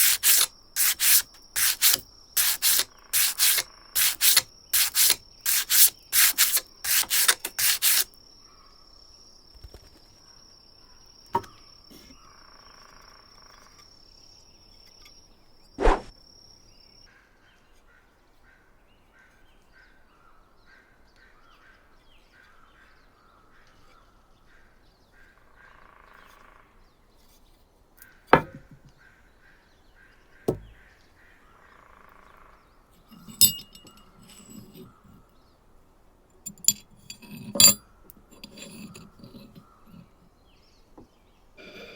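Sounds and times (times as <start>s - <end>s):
hand sanding wood: 0.0s - 8.1s.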